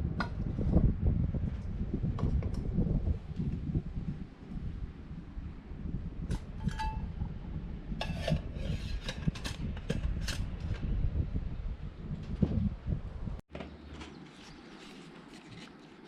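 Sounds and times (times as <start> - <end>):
steady low rumble: 0.0 - 13.4
metal pot scraping and clinking: 6.3 - 7.3, 8.0 - 10.5.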